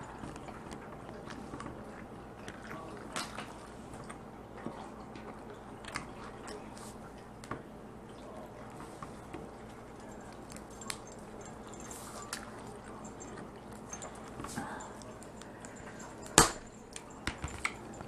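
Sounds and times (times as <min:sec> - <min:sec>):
wet chewing: 0:00.0 - 0:18.0.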